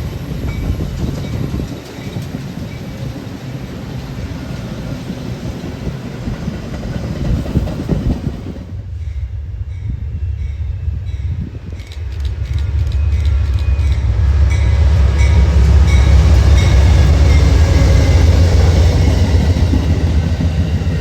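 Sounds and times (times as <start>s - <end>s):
train passing on tracks: 0.0s - 21.0s.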